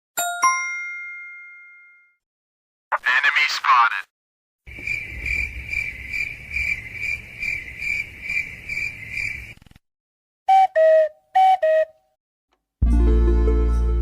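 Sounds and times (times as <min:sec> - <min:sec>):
cricket chirping: 0:04.7 - 0:09.6.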